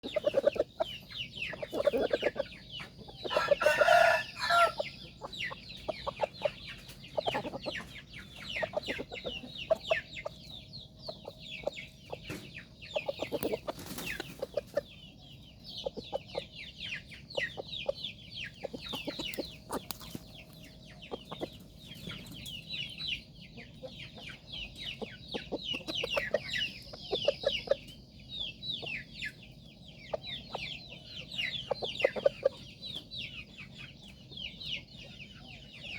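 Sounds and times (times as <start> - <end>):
chickens clucking and chirping: 0.0 - 35.9
loud rooster call: 3.4 - 4.8.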